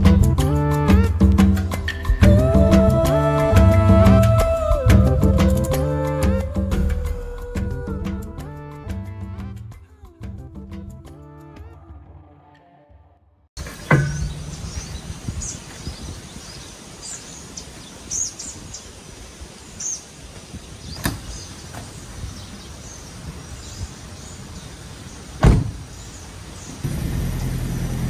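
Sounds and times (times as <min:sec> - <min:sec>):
small birds chirping: 0:13.6 - 0:26.9
loud thump: 0:25.4 - 0:25.8.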